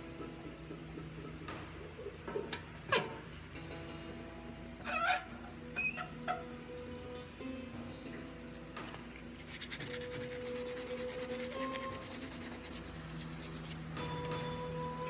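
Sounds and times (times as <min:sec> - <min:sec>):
background music tones: 0:03.4 - 0:09.4, 0:13.9 - 0:15.0
rubbing strokes on steel blade: 0:09.4 - 0:13.8.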